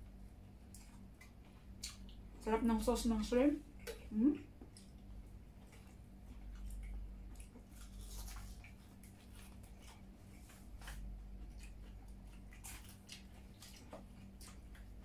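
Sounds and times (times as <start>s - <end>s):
people chewing fried food: 0.0s - 2.4s, 3.6s - 15.0s
steady low hum: 0.0s - 15.0s
lip smacks: 0.7s - 2.2s.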